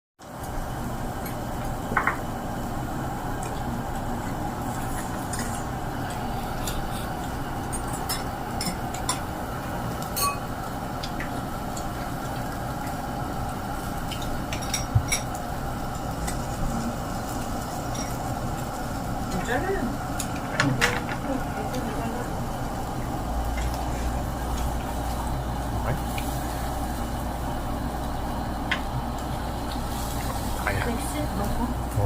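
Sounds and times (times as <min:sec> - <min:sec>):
low hum: 0:00.4 - 0:32.0
dishes and cutlery clinking: 0:10.1 - 0:10.5, 0:14.1 - 0:15.4.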